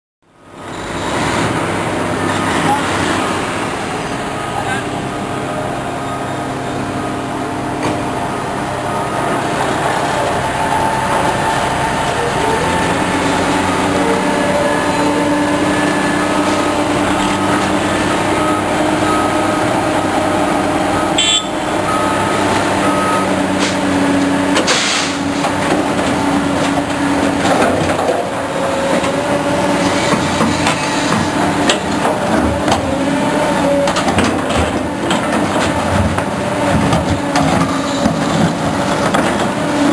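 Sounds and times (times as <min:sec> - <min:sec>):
diesel engines droning: 0:00.2 - 0:39.9
short beeps: 0:21.0 - 0:23.3
knocks and clanks: 0:24.5 - 0:29.2, 0:29.8 - 0:33.0, 0:33.8 - 0:39.6.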